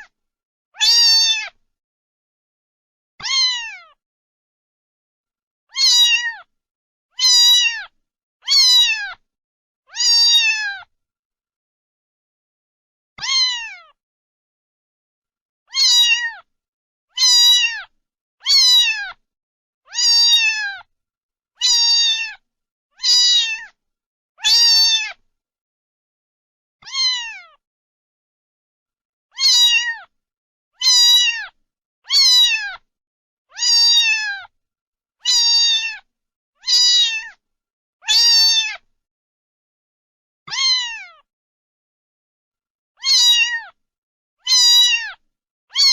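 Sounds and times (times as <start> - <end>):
cat meowing: 0.8 - 1.6, 3.2 - 4.0, 5.7 - 6.5, 7.2 - 9.2, 9.9 - 10.9, 13.2 - 14.0, 15.7 - 16.5, 17.1 - 19.2, 19.9 - 20.9, 21.6 - 22.4, 23.0 - 23.8, 24.4 - 25.2, 26.8 - 27.6, 29.3 - 30.1, 30.8 - 32.8, 33.5 - 34.5, 35.2 - 37.4, 38.0 - 38.8, 40.5 - 41.3, 43.0 - 43.8, 44.4 - 45.9.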